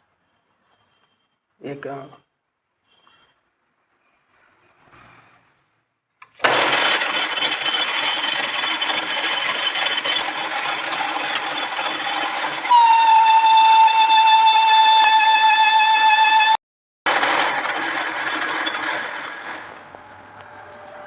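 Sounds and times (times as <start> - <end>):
metal lathe whirring: 6.4 - 14.6
high-pitched squeal: 7.0 - 16.6.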